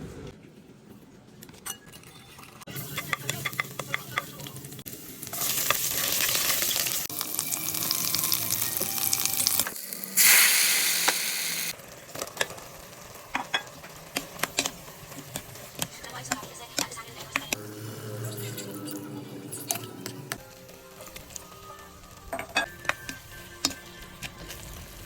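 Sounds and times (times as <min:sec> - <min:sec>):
food sizzling in frying pan: 0:04.5 - 0:15.8.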